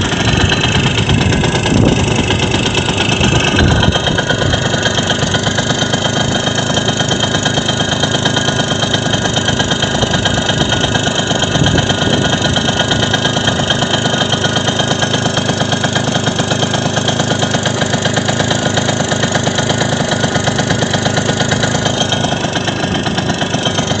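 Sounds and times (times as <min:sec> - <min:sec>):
moped engine running: 0:00.0 - 0:24.0.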